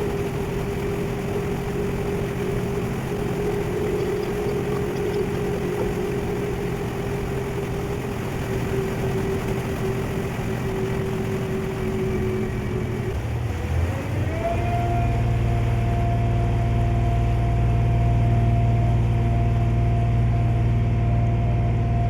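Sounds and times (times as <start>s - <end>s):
steady whine: 0.0s - 13.4s
ferry engine humming: 0.0s - 22.0s.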